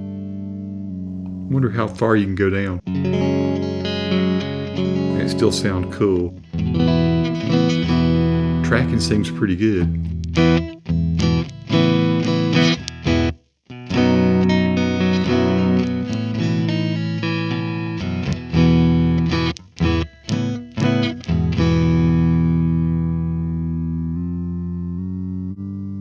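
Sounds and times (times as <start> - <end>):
electric guitar chugging riffs: 1.2 - 23.4.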